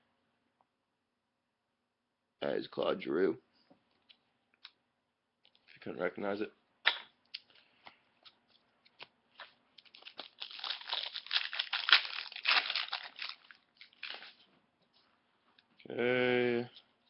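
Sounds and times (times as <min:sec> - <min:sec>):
foil wrapper crinkling and tearing: 0:09.4 - 0:14.4.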